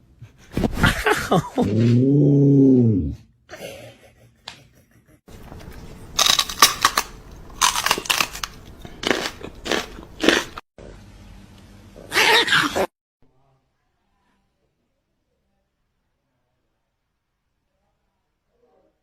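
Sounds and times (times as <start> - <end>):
crunching: 5.4 - 10.6.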